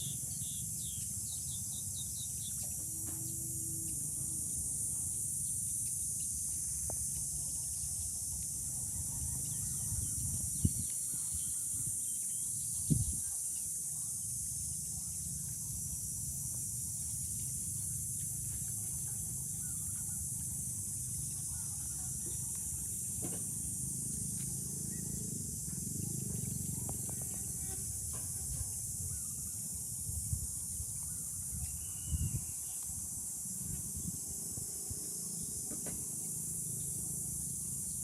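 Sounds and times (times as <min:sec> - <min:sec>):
faint bird chirps: 0:31.0 - 0:33.0.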